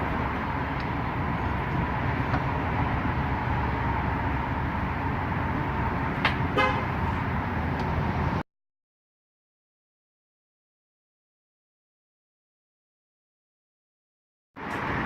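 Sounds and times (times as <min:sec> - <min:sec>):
car road and engine noise: 0:00.0 - 0:08.4, 0:14.6 - 0:15.0.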